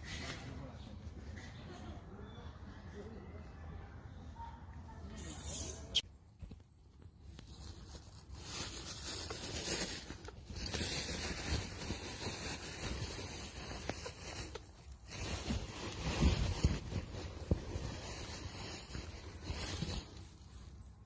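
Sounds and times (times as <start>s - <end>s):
rustling and scraping: 6.3s - 21.0s.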